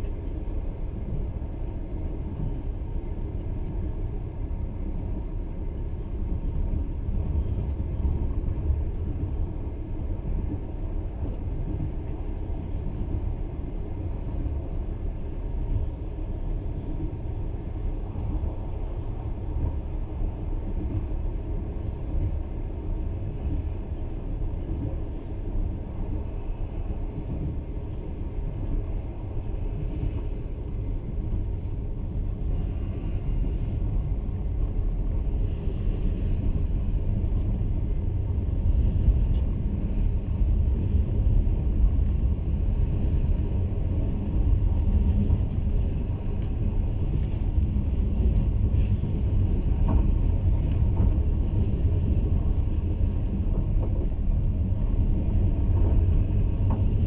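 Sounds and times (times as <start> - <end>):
train rumbling on rails: 0.0 - 57.0.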